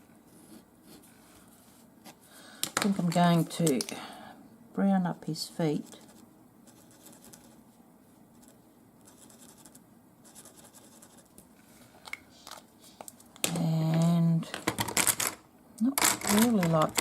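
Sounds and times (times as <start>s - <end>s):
scratching and rubbing on paper: 5.5s - 11.4s.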